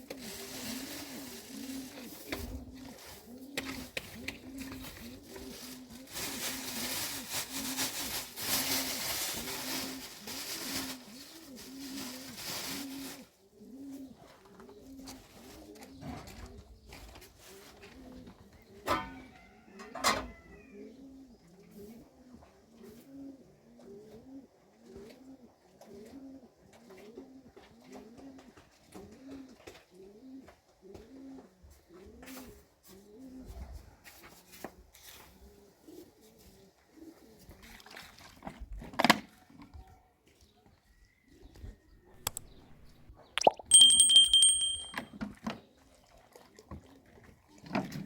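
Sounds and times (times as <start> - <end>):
dove cooing: 0.2 - 7.1, 9.1 - 19.0, 20.6 - 33.8, 35.4 - 37.4
clicks: 42.2 - 43.0.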